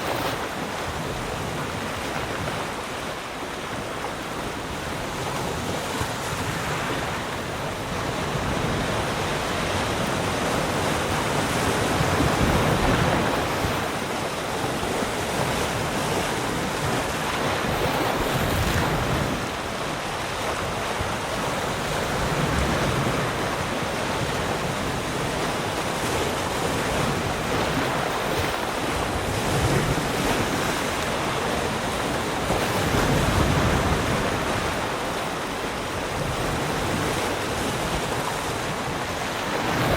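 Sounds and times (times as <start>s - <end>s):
waves breaking on shore: 0.0s - 39.9s
wind on microphone: 0.0s - 39.9s.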